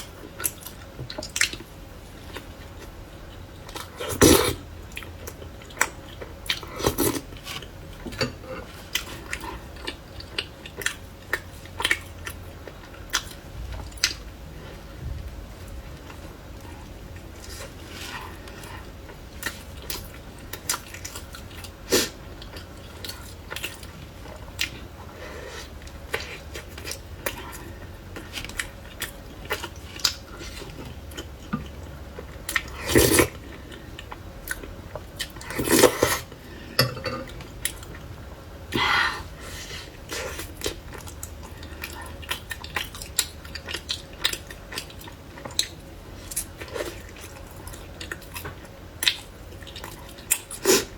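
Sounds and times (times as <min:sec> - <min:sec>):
dishes clattering: 0:36.8 - 0:37.4.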